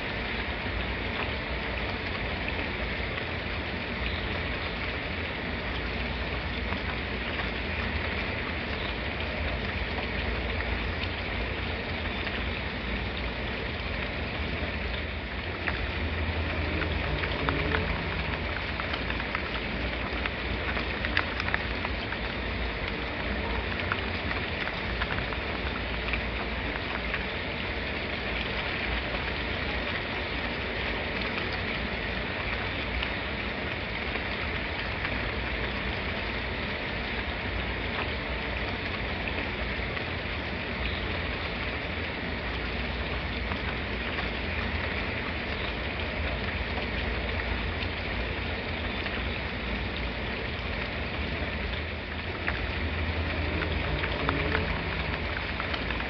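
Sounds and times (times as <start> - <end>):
raindrops pattering: 0.0 - 56.0
steady rain: 0.0 - 56.0
low rumble: 51.1 - 56.0.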